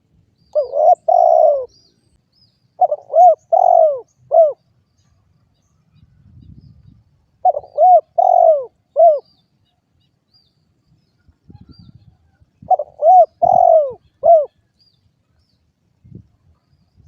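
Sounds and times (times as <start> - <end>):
dove cooing: 0.5 - 1.7, 2.8 - 4.6, 7.4 - 9.3, 12.6 - 14.6.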